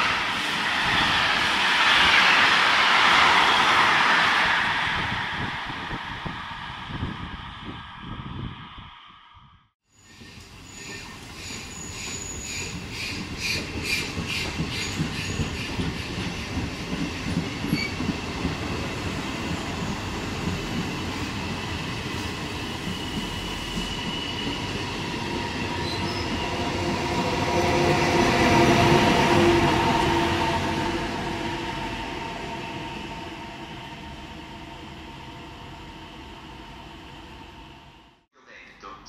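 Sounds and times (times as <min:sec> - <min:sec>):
train coaches rolling past: 0:00.0 - 0:07.7, 0:10.0 - 0:38.2
electric locomotive whine: 0:09.9 - 0:38.3.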